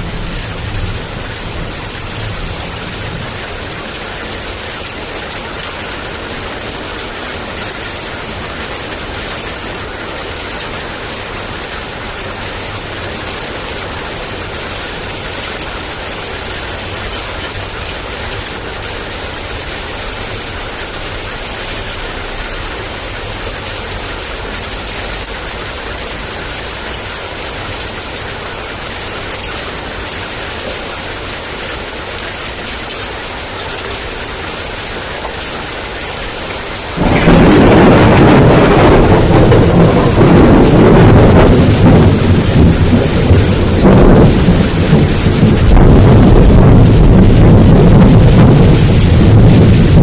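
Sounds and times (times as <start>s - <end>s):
heavy rain falling: 0.0s - 50.0s
loud thunder peal: 36.8s - 50.0s
low rumble: 37.0s - 50.0s.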